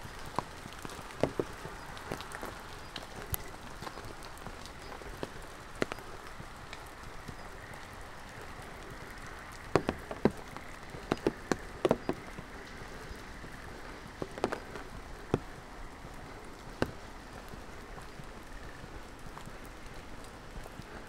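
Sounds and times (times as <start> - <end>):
drops tapping: 9.7 - 12.8.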